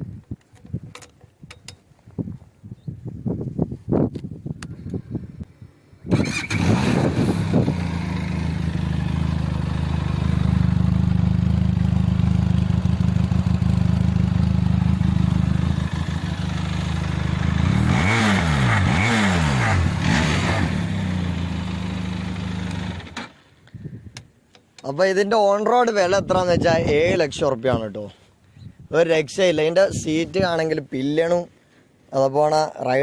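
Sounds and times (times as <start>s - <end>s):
motorcycle engine idling and revving: 6.1s - 23.4s.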